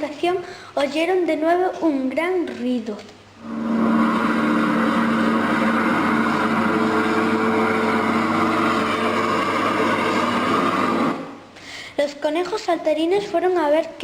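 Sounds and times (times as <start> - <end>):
garbage truck engine droning: 3.4 - 11.4.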